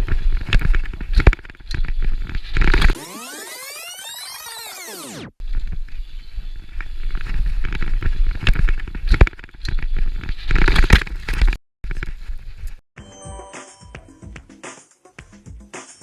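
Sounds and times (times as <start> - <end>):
bike tyres crunching and rattling: 0.0 - 3.0, 5.4 - 12.8.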